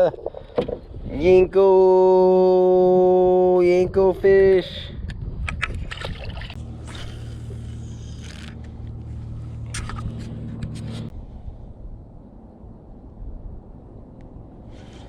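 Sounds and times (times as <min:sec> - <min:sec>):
low motor hum: 0:06.0 - 0:15.0
scraping: 0:06.5 - 0:11.1.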